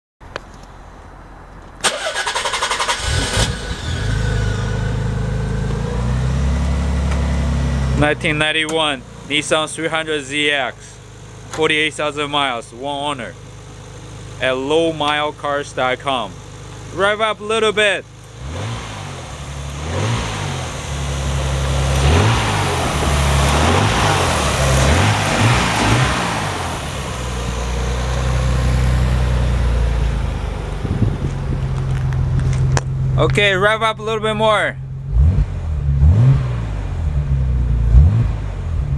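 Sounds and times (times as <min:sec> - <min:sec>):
engine idling: 0:01.8 - 0:18.5, 0:19.1 - 0:35.1.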